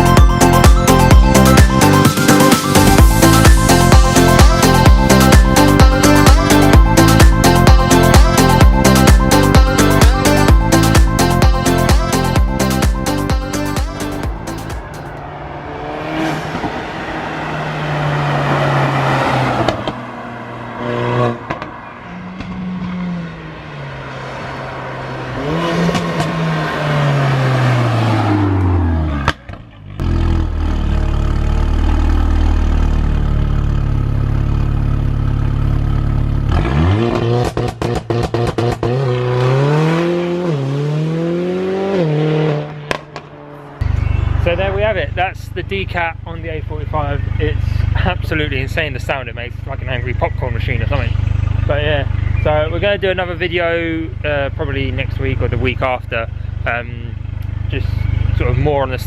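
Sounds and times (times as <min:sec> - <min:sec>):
car engine revving: 0:00.0 - 0:59.0
exhaust pops and crackles: 0:21.5 - 0:21.7, 0:36.6 - 0:39.2, 0:42.8 - 0:43.4.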